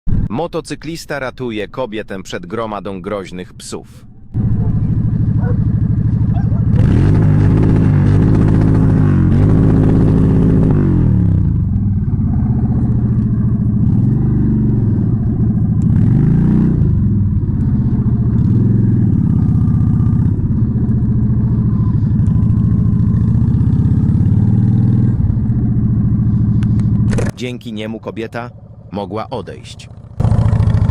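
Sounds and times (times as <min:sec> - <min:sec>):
motorcycle engine revving: 0:04.1 - 0:30.9.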